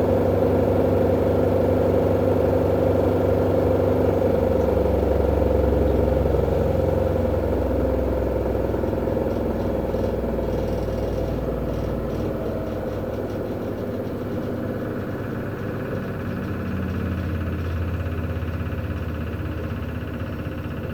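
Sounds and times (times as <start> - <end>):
washing machine humming: 0.0 - 20.9
light rattle: 9.3 - 18.0.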